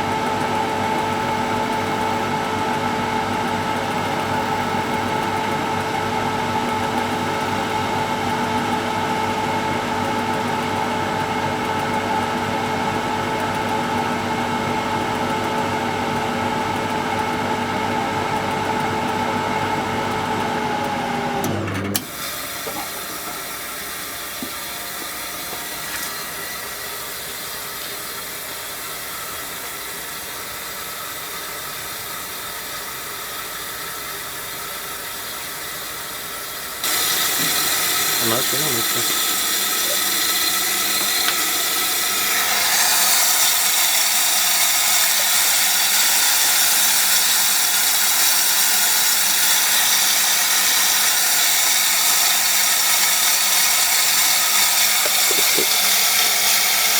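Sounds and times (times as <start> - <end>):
washing machine motor running: 0.0 - 56.9
steady hiss: 36.8 - 47.2.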